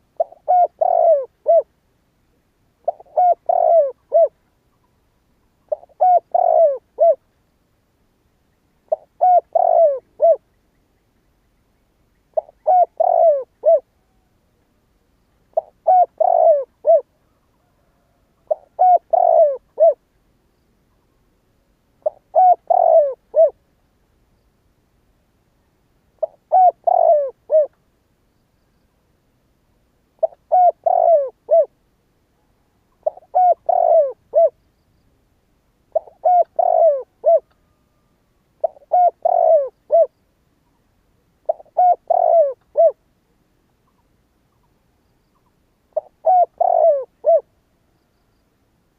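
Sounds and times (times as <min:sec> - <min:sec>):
dove cooing: 0:00.0 - 0:01.7, 0:02.8 - 0:04.4, 0:05.7 - 0:07.2, 0:08.9 - 0:10.5, 0:12.3 - 0:14.3, 0:15.5 - 0:20.0, 0:22.0 - 0:23.6, 0:26.2 - 0:27.8, 0:30.2 - 0:31.8, 0:33.0 - 0:34.6, 0:35.9 - 0:40.2, 0:41.4 - 0:43.0, 0:45.9 - 0:47.5.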